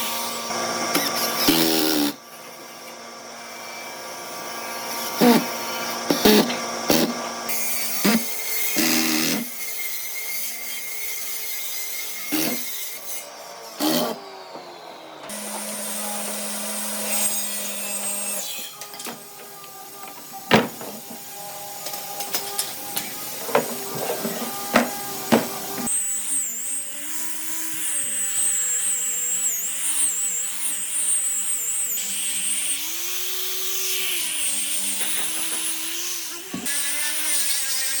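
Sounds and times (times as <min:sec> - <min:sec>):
tool humming: 0:00.0 - 0:38.0
sawing and rubbing wood: 0:04.7 - 0:26.0
knocks on wood: 0:20.5 - 0:21.2, 0:23.4 - 0:25.9.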